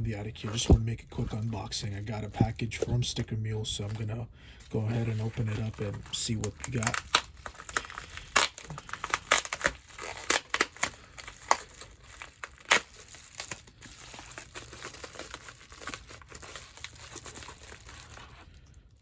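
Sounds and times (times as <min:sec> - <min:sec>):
package wrapping tearing and crinkling: 0:04.8 - 0:19.0.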